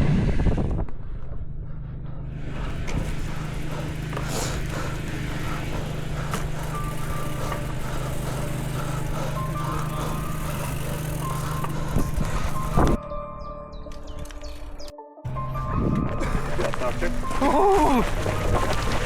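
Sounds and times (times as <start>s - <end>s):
wind buffeting microphone: 0.0s - 1.6s, 2.4s - 13.0s
motor humming: 2.3s - 13.0s, 15.3s - 19.0s.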